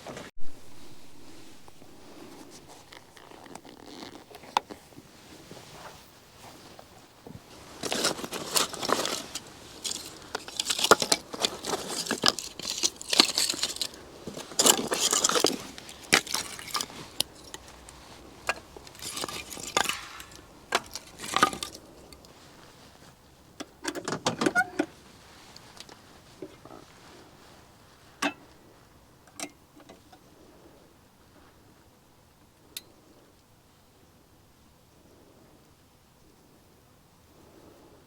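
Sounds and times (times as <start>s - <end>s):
rustling of gear: 0.0s - 28.8s
small metal objects clinking: 7.8s - 21.9s.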